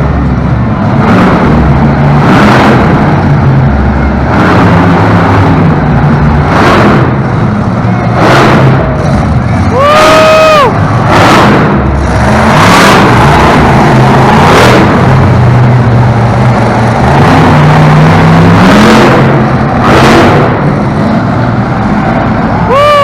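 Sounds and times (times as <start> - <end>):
truck engine revving hard: 0.0 - 23.0.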